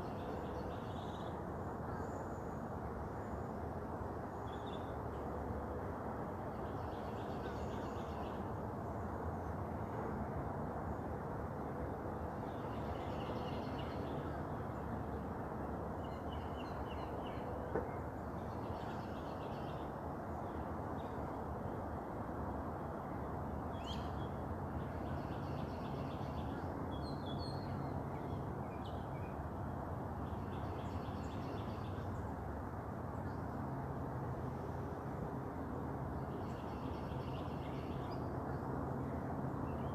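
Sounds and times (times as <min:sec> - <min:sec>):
songbird singing: 0:12.5 - 0:14.4, 0:23.8 - 0:29.4.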